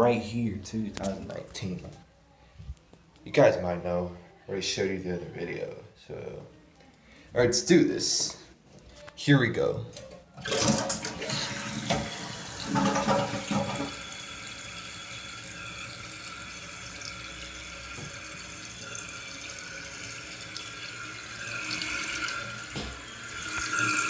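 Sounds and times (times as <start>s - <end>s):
toilet flush water rushing: 10.4s - 24.0s
toilet tank refilling hiss: 10.4s - 24.0s.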